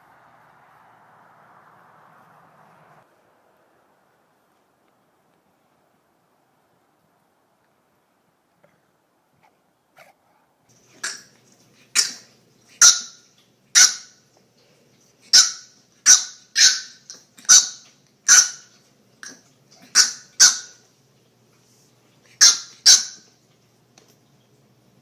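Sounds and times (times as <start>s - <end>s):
dog barking: 13.8s - 14.2s, 15.3s - 18.7s, 19.8s - 20.8s, 22.4s - 23.2s.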